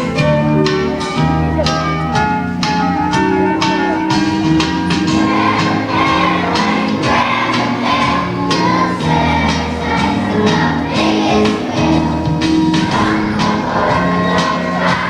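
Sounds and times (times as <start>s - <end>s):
children singing together: 0.0s - 15.0s
instrumental accompaniment with beat: 0.0s - 15.0s.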